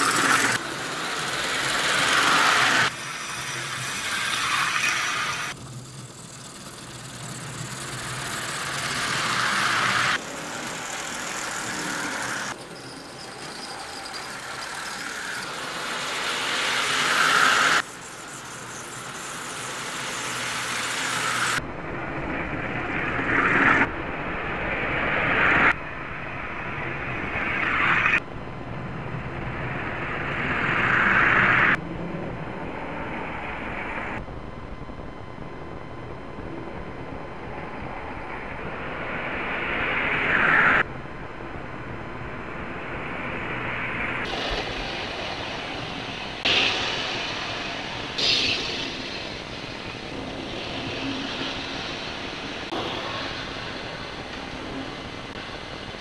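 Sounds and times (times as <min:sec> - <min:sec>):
toy cars whirring on track: 0:00.0 - 0:21.6.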